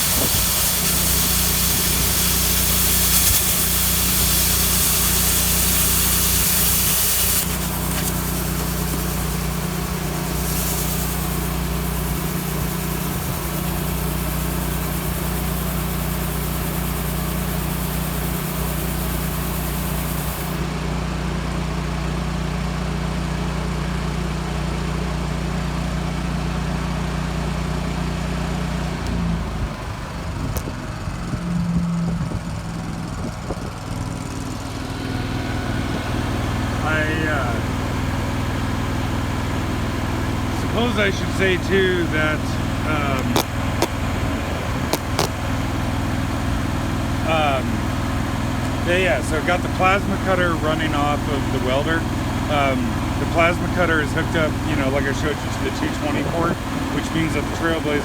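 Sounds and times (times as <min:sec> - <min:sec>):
plasma cutter hissing: 0:00.0 - 0:20.6, 0:40.4 - 0:44.0, 0:44.8 - 0:45.4
generator engine running: 0:00.0 - 0:58.0.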